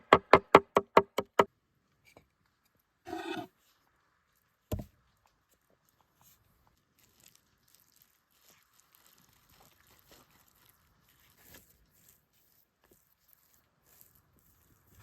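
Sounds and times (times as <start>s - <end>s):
faint small clicks and crackles: 4.3s - 15.0s.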